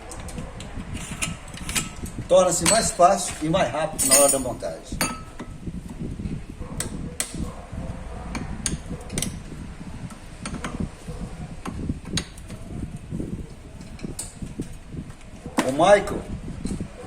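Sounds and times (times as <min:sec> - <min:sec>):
low steady rumble: 0:04.0 - 0:15.6.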